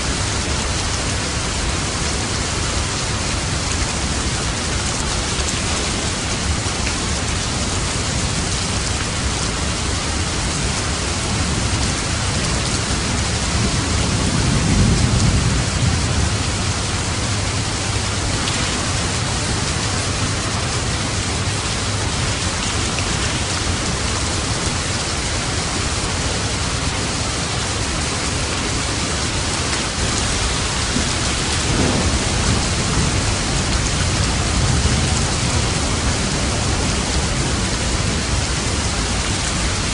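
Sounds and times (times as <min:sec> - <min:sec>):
steady rain falling: 0:00.0 - 0:39.9
light thunder rolls: 0:30.0 - 0:38.8.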